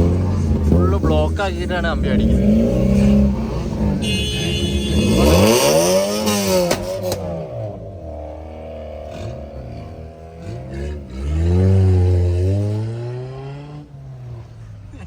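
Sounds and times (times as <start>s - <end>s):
car engines revving: 0.0s - 15.0s
sharp cracks: 6.3s - 7.4s.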